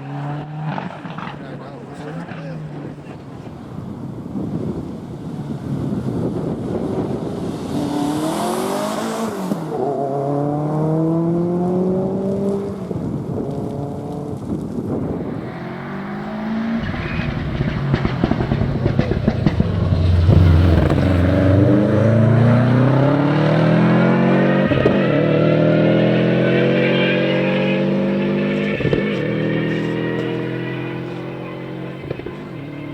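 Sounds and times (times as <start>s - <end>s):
rally car engine accelerating: 15.1s - 32.9s.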